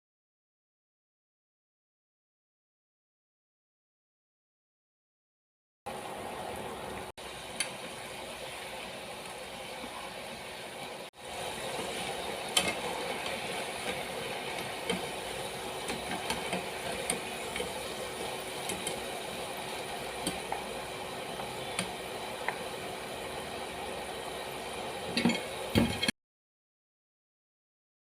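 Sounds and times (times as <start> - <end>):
potatoes sizzling in hot oil: 5.9 - 26.0.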